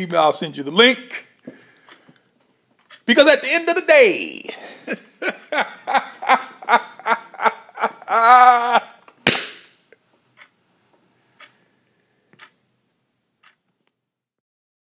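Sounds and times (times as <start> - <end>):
sharp bang: 9.2 - 9.8.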